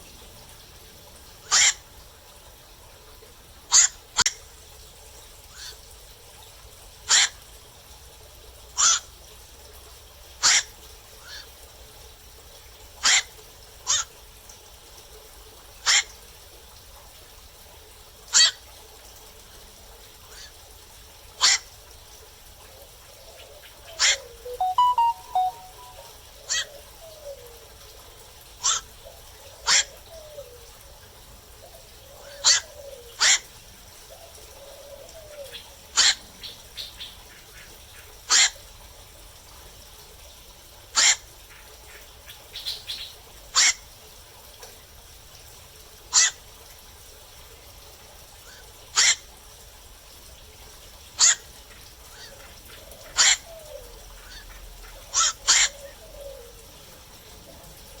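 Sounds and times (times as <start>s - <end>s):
heron calling: 24.0s - 26.6s.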